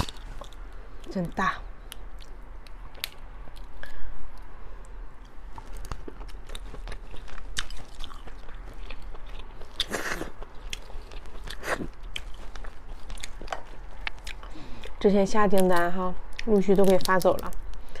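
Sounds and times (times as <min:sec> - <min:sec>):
chewing: 0:05.2 - 0:17.5.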